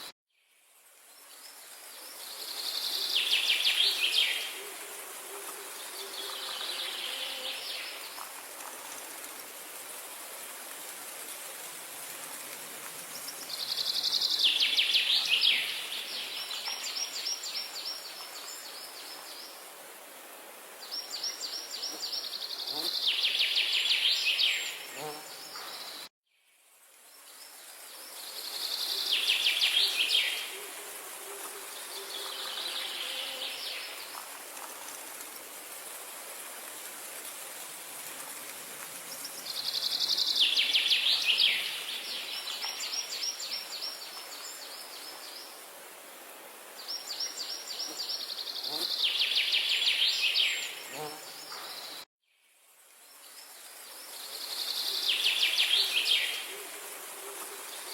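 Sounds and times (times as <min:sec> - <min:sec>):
outdoor hiss: 0:00.0 - 0:57.9.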